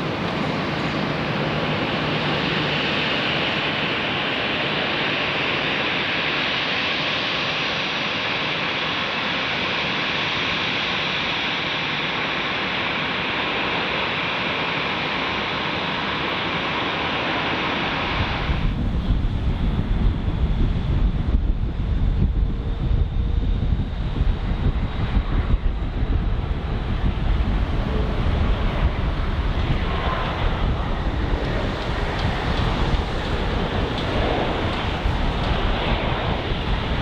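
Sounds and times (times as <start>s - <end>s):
wind buffeting microphone: 0.0s - 7.3s, 16.7s - 37.0s
jet engines roaring: 0.0s - 37.0s.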